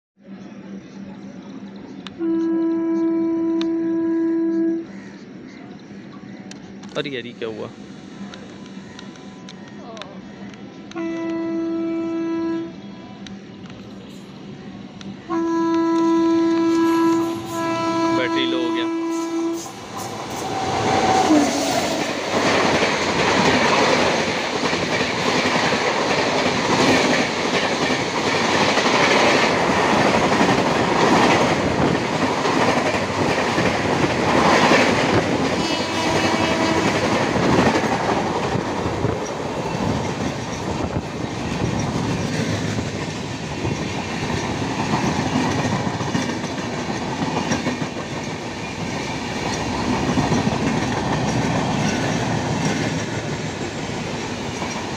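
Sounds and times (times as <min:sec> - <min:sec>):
wheels clickety-clack over rail joints: 0:19.6 - 0:54.9.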